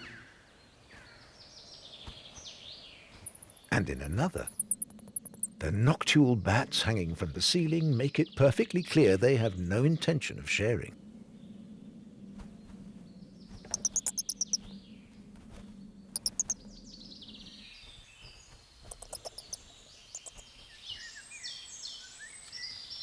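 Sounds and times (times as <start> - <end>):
bird song with warbling trills: 0.0 - 5.6, 7.4 - 10.1, 11.2 - 15.2, 15.8 - 23.0
bats squeaking: 3.2 - 5.6, 13.7 - 14.6, 16.2 - 16.6, 18.9 - 20.5.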